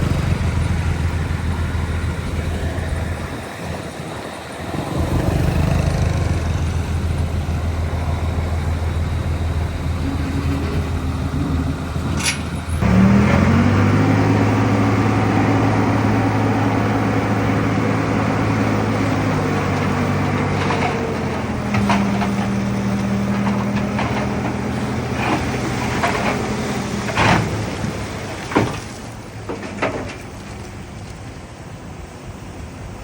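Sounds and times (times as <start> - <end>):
diesel engine running: 0.0 - 33.0
sharp metal clanks and knocks: 12.1 - 12.8.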